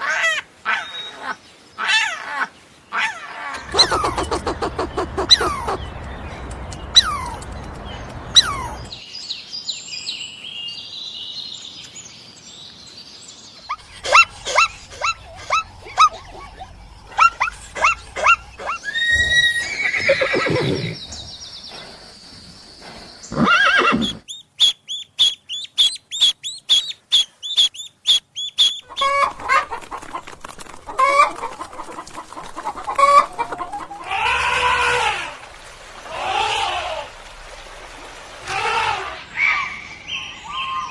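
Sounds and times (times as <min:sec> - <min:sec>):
chickens clucking: 0:03.5 - 0:09.0, 0:13.7 - 0:18.8, 0:28.4 - 0:34.6.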